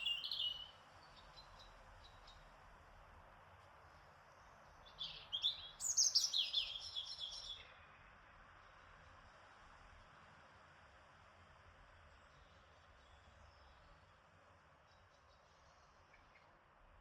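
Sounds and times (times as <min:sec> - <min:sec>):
songbird singing: 0:00.0 - 0:02.6, 0:04.3 - 0:08.1, 0:12.2 - 0:16.6
faint background hiss: 0:00.0 - 0:17.0.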